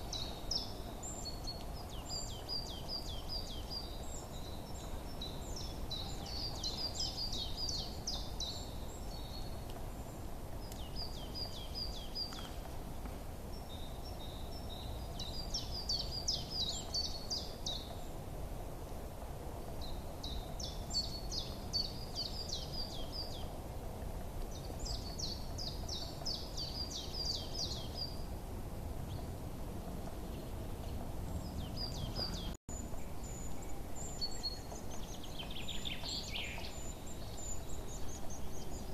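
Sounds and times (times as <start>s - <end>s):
low background hiss: 0.0s - 38.9s
small songbirds chirping: 0.0s - 38.9s.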